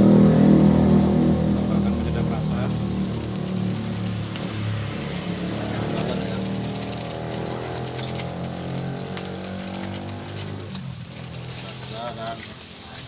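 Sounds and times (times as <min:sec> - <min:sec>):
paste sizzling in hot oil: 0:00.0 - 0:13.0.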